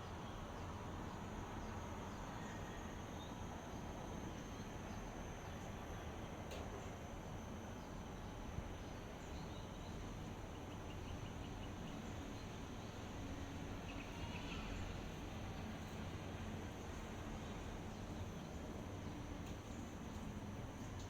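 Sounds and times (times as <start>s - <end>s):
high insect drone: 7.0s - 19.0s.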